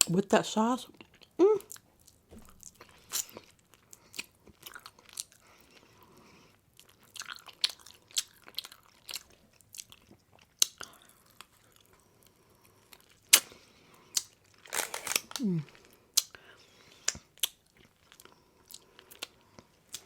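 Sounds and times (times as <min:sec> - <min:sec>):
person biting and chewing: 0:12.8 - 0:15.5, 0:16.1 - 0:20.0.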